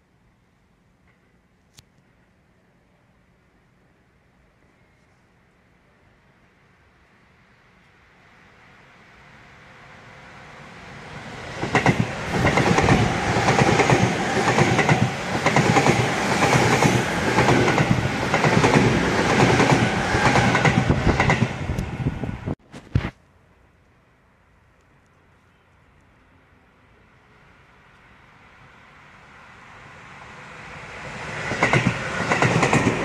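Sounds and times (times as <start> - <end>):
electric train passing: 6.2 - 22.6, 26.2 - 33.0.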